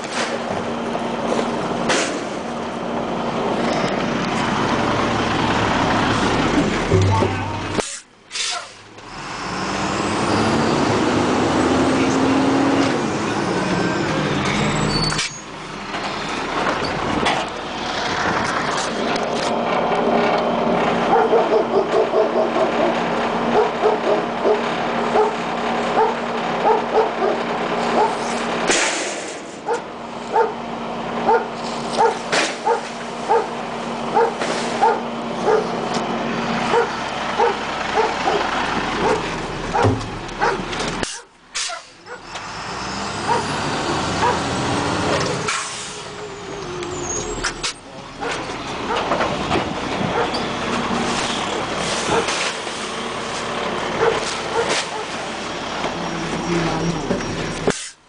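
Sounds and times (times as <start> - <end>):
garbage truck engine humming: 0.0 - 58.0
dog barking: 21.1 - 22.7, 23.5 - 24.6, 25.2 - 25.4, 26.0 - 28.2, 29.6 - 30.6, 31.3 - 33.5, 34.2 - 35.7, 36.7 - 42.3, 43.3 - 43.5, 44.2 - 44.4, 50.1 - 50.4, 54.0 - 55.2.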